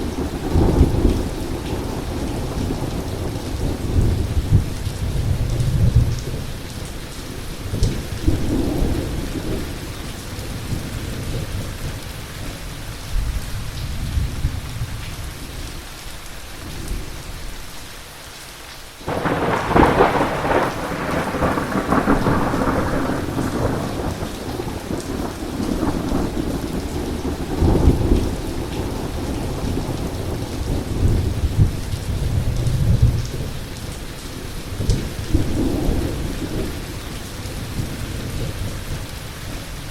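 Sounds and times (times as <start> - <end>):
heavy rain: 0.0 - 39.9
close thunderclap: 19.1 - 33.6
rolling thunder: 19.1 - 34.0.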